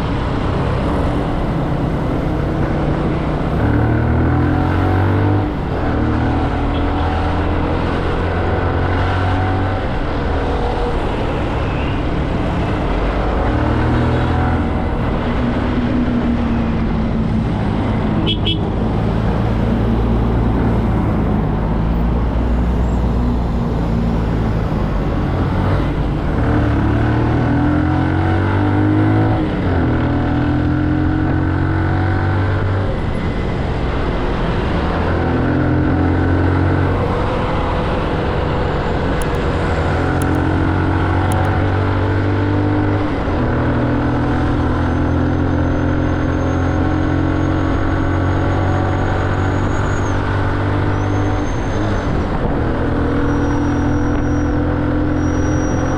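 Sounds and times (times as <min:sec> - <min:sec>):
wind and road rush: 0:00.0 - 0:55.9
motorcycle engine through gears: 0:22.9 - 0:55.9.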